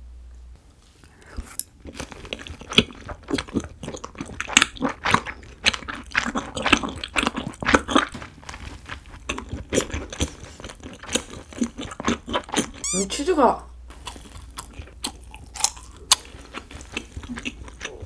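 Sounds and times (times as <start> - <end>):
wet crunchy chewing: 1.7 - 13.0, 13.9 - 18.0.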